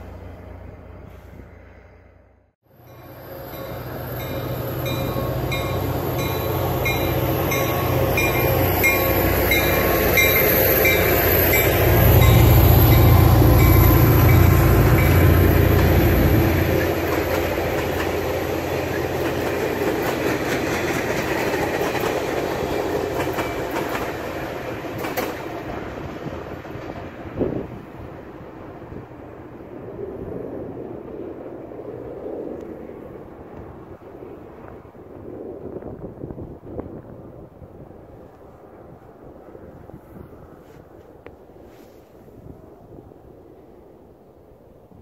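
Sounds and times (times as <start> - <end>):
diesel locomotive engine rumble: 0.0 - 34.9
clatter of rolling train cars: 2.9 - 28.2.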